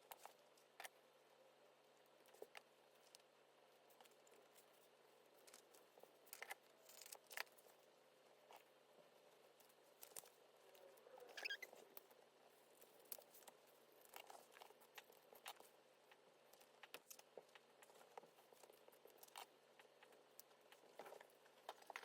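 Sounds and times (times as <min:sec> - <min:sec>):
squeaky rustle: 0:11.2 - 0:12.0.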